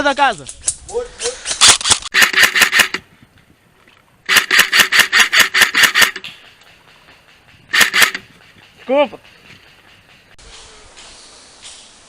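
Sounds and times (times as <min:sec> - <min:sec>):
airsoft rifle full-auto bursts: 0:02.1 - 0:03.0, 0:04.3 - 0:06.2, 0:07.7 - 0:08.2.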